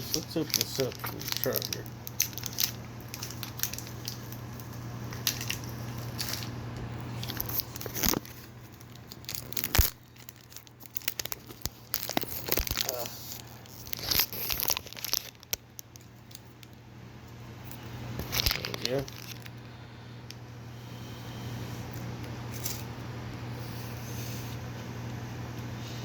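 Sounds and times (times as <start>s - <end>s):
wrapper tearing and crinkling: 0.0s - 16.6s, 18.2s - 19.6s.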